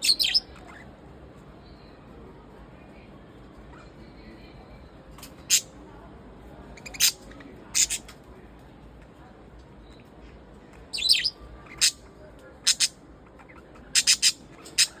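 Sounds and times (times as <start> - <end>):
budgerigars chirping: 0.0 - 0.8, 6.8 - 8.0, 11.0 - 12.0, 12.6 - 15.0
budgerigar warbling chatter: 0.0 - 0.9, 5.4 - 5.7, 6.8 - 8.1, 10.9 - 12.0, 12.6 - 15.0.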